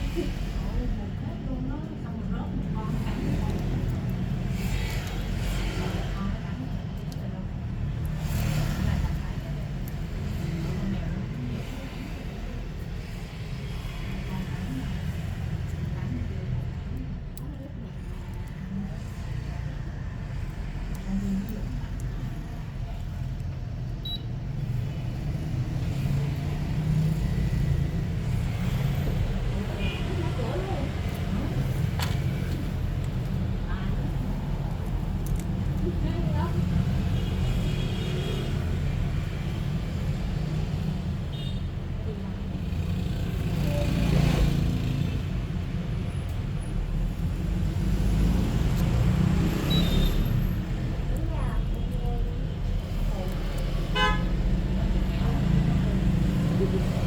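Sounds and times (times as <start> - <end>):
low rumble of vehicle engines: 0.0 - 57.0
loud vehicle passing: 42.4 - 46.0, 46.8 - 51.1, 52.4 - 57.0.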